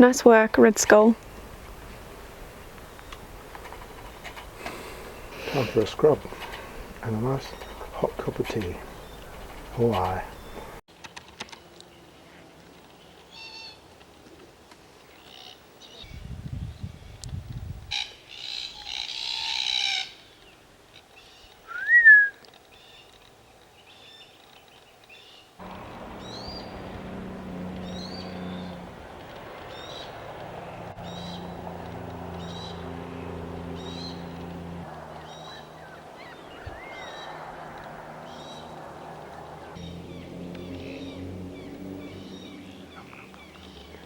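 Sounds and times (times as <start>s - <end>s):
bird rising and falling call: 21.2s - 23.0s, 26.2s - 44.0s
high bird chirps: 26.2s - 26.9s, 27.8s - 28.8s
bird screeching: 35.1s - 38.8s.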